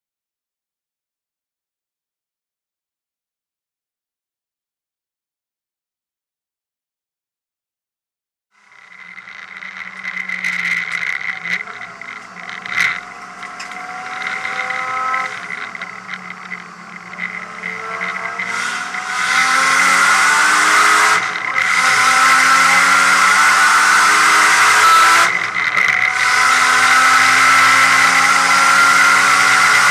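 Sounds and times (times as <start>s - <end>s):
car engine accelerating hard: 8.6s - 29.9s.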